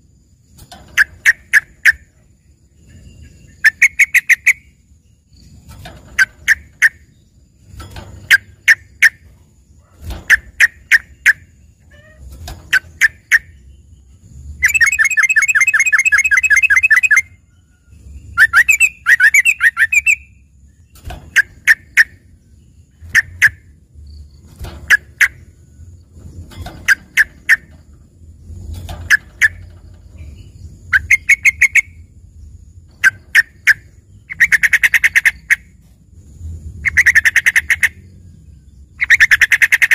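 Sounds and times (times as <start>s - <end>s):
bird rapid trill: 0.6s - 35.8s, 36.8s - 39.9s
bird sharp chirps: 0.9s - 9.3s, 10.3s - 17.4s, 18.0s - 25.8s, 29.2s - 35.7s.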